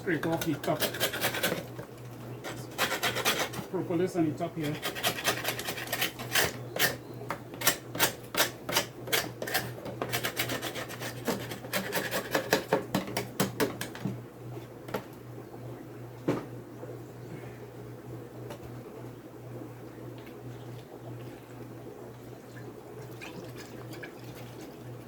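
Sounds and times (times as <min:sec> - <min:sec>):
scraping wooden beehive: 0:00.1 - 0:03.7, 0:04.6 - 0:07.0, 0:07.6 - 0:12.8.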